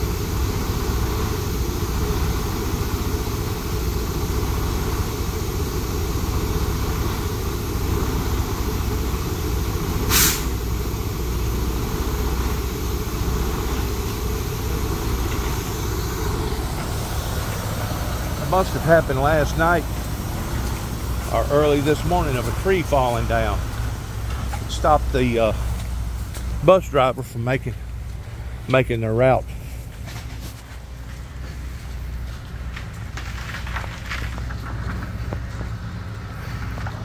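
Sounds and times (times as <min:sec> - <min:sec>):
vehicle engine idling: 0:00.0 - 0:37.0
short sharp hiss: 0:10.0 - 0:10.7.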